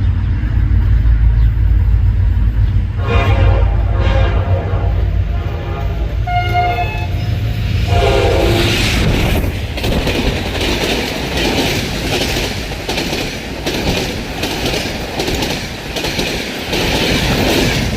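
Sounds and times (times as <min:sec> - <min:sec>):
train rushing past: 0:00.0 - 0:17.9
train horn: 0:03.0 - 0:09.2
train wheels clattering: 0:08.0 - 0:17.9.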